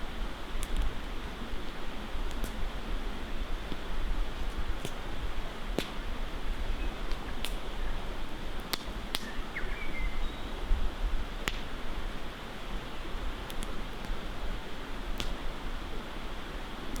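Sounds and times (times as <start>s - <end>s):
wood fire popping: 0.5s - 1.0s, 1.6s - 2.6s, 7.1s - 7.6s, 8.6s - 9.3s, 11.4s - 11.8s, 13.4s - 14.3s, 15.1s - 15.5s.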